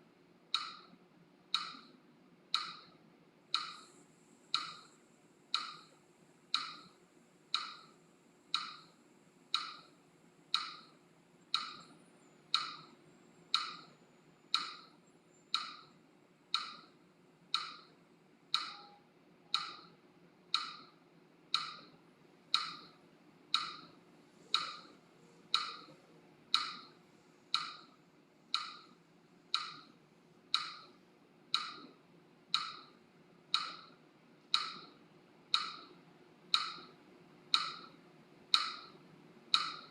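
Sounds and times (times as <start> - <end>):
metronome clicking: 0.6 - 0.9, 1.6 - 1.9, 2.5 - 2.9, 5.5 - 5.8, 6.5 - 6.9, 7.5 - 7.8, 8.5 - 8.9, 9.5 - 9.9, 10.5 - 10.9, 14.5 - 14.9, 15.5 - 15.9, 16.5 - 16.9, 17.5 - 17.9, 18.5 - 19.9, 21.5 - 21.9, 22.5 - 22.9, 29.6 - 29.9, 31.6 - 31.9, 34.6 - 34.9, 35.5 - 35.9, 39.6 - 39.9.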